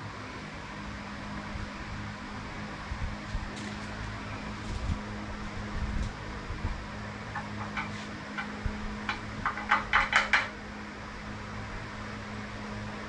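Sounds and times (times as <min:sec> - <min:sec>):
steady low hum: 0:00.0 - 0:13.0
tools clinking and knocking: 0:07.4 - 0:10.6.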